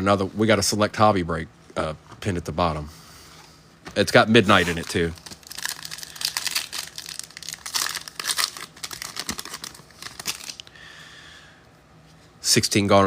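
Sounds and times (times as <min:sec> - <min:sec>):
wrappers crinkling and tearing: 0:04.4 - 0:10.7.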